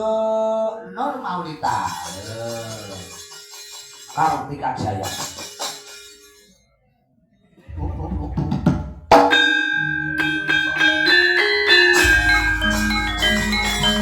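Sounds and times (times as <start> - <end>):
metallophones ringing melody: 9.3 - 14.0
drum strokes: 10.2 - 14.0.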